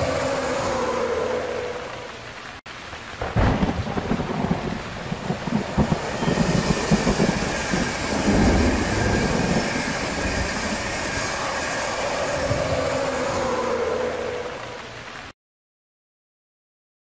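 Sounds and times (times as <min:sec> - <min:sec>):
passenger train passing at speed: 0:00.0 - 0:02.5, 0:04.2 - 0:15.3
locomotive whine: 0:00.0 - 0:02.6, 0:03.8 - 0:15.3.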